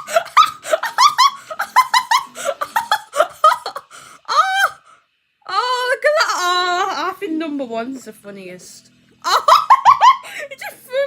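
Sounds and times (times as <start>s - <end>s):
person laughing hard: 0.0s - 4.7s, 9.2s - 10.7s.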